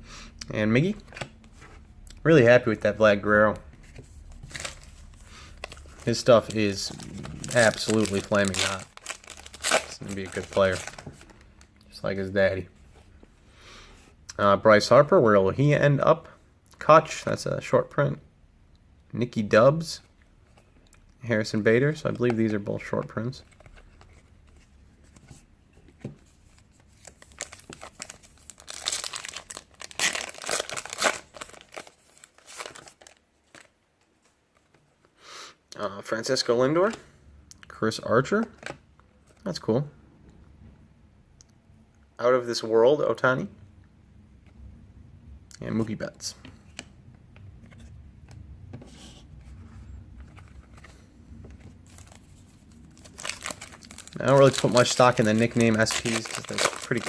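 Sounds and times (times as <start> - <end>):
low room hum: 0.0 - 57.0
foil wrapper tearing and crinkling: 4.4 - 11.1, 27.0 - 33.7, 51.8 - 57.0.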